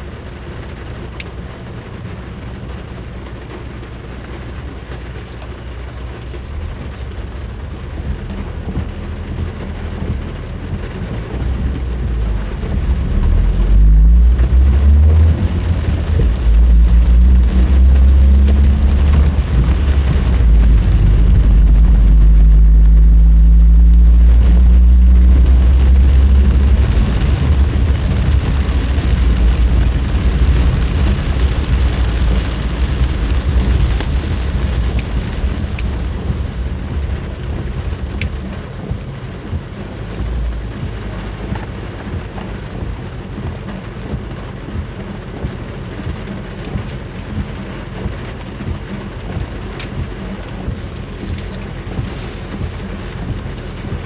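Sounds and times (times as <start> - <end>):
heavy rain hiss: 0.0 - 54.0
deep thunder rumbling: 11.4 - 38.7.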